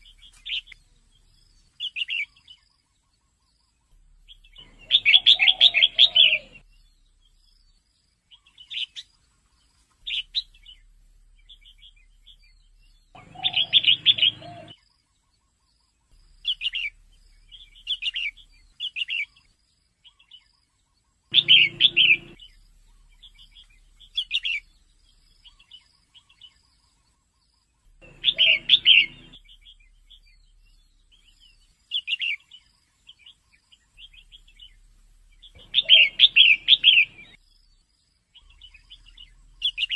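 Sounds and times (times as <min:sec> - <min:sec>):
bird chattering chirps: 0:04.2 - 0:07.3, 0:10.0 - 0:14.8, 0:16.4 - 0:19.4, 0:21.3 - 0:26.6, 0:27.8 - 0:37.4, 0:38.4 - 0:39.9.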